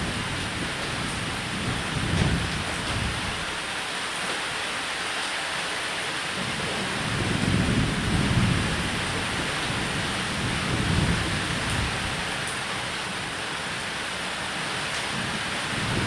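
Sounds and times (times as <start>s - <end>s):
rain falling on a roof: 0.0s - 16.0s
rolls of thunder: 1.6s - 3.2s.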